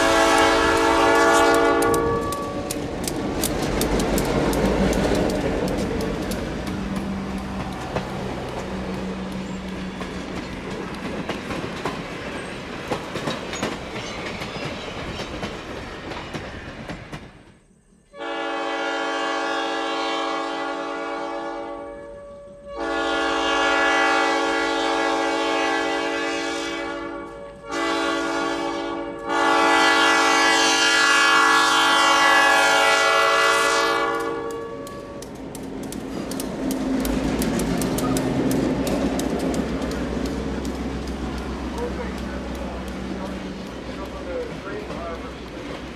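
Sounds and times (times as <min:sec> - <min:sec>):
train air horn blasts: 0:00.0 - 0:02.9, 0:18.1 - 0:35.3
rail clatter: 0:00.0 - 0:17.6, 0:34.0 - 0:45.9
diesel locomotive rolling: 0:00.0 - 0:18.5, 0:29.3 - 0:45.9.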